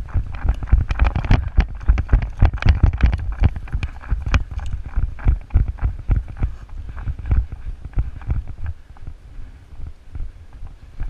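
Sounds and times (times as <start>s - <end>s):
gear rattling: 0.0s - 8.7s
heavy running footfalls: 0.0s - 8.8s
wind on microphone: 0.0s - 11.0s.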